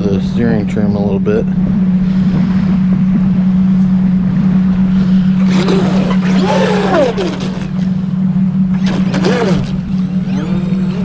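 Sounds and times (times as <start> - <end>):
loud steady low hum: 0.0 - 11.0
electric motor whining: 5.0 - 11.0.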